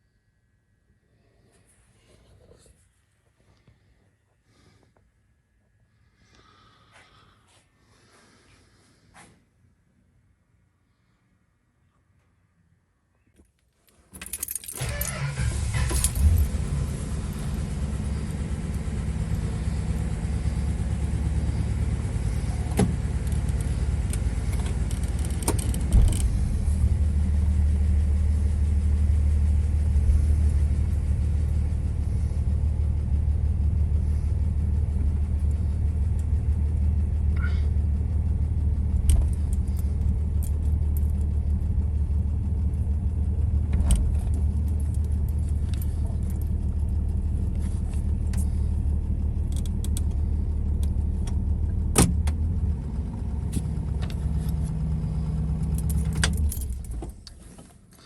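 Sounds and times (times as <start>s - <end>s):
car engine starting and running: 14.2s - 58.0s.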